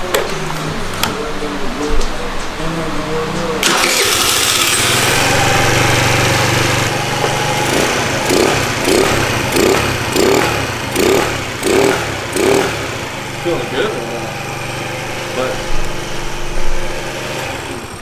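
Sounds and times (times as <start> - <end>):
scooter engine running: 3.6 - 18.0.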